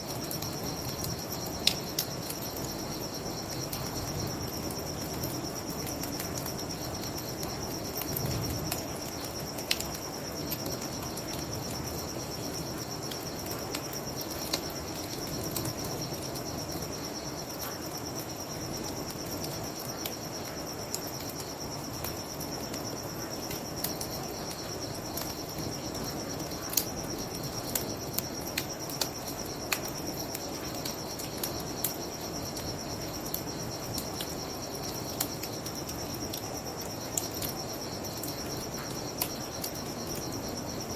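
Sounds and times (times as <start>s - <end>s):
crickets chirping: 0.0s - 40.9s
bonfire crackling: 18.3s - 40.9s.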